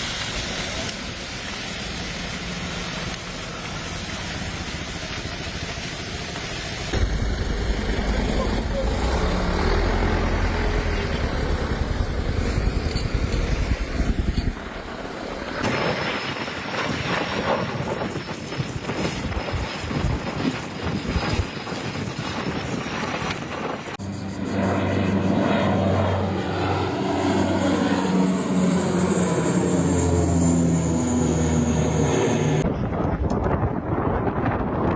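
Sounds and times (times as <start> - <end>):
low rumble: 0.0 - 16.2
fire crackling: 0.0 - 24.0
propeller aircraft passing overhead: 0.0 - 34.6.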